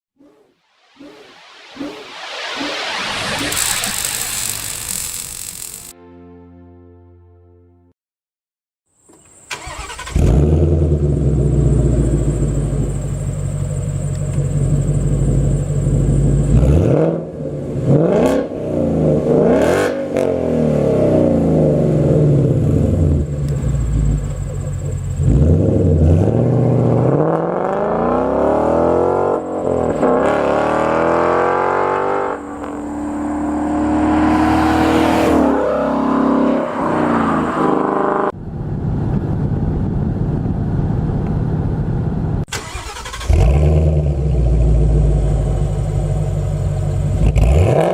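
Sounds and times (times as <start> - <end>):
car engine idling and revving: 9.6 - 47.9.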